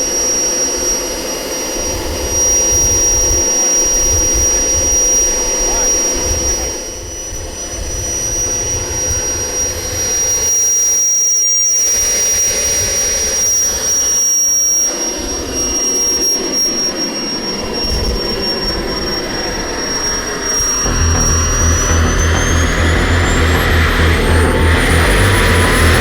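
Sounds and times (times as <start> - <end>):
jet turbine engine whine: 14.9 - 26.0.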